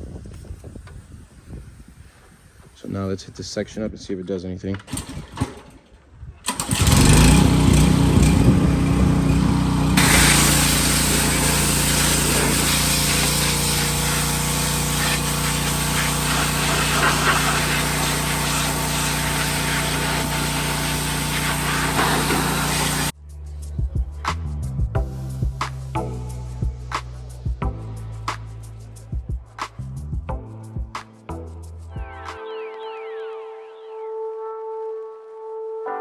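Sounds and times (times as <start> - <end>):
pressure washer pump humming: 6.5 - 23.1
water jet spraying on metal: 10.0 - 23.1.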